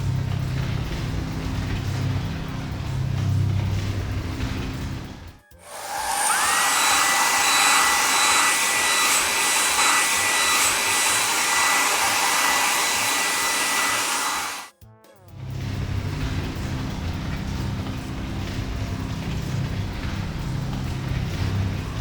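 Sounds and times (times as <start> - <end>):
electric air blower motor whine: 5.6 - 14.7.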